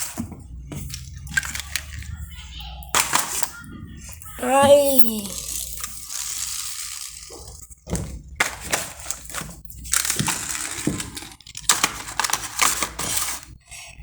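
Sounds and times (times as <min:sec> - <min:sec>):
plastic rustling and crackling: 0:00.0 - 0:02.2, 0:05.3 - 0:14.0.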